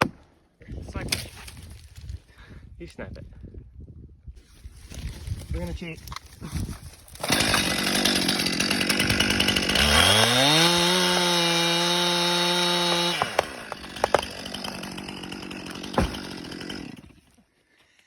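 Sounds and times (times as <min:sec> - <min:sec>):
chainsaw revving and idling: 0:07.2 - 0:17.3
low thump: 0:15.9 - 0:16.2.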